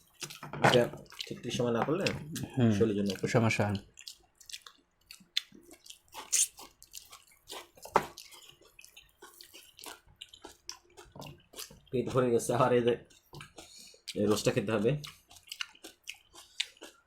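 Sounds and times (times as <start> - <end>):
wet chewing smacks: 1.0 - 11.9, 15.0 - 17.0.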